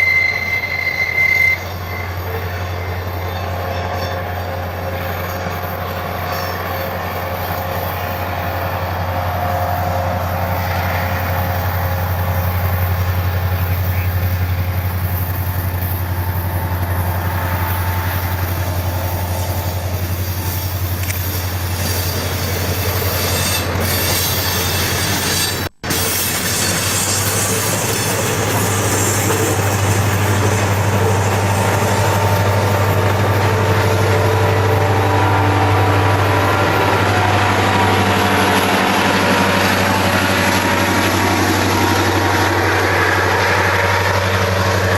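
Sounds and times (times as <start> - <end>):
wheels squealing on track: 0.0 - 34.8
diesel locomotive engine drone: 0.0 - 44.9.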